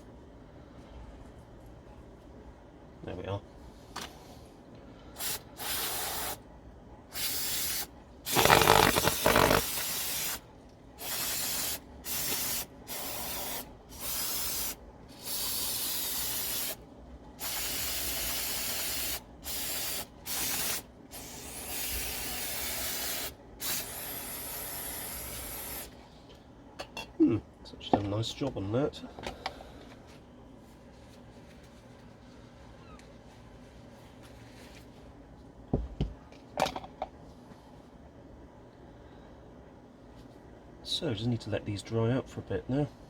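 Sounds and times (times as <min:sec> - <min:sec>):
aerosol can spraying: 0:05.2 - 0:06.4, 0:07.2 - 0:10.4, 0:11.0 - 0:16.8, 0:17.4 - 0:25.9.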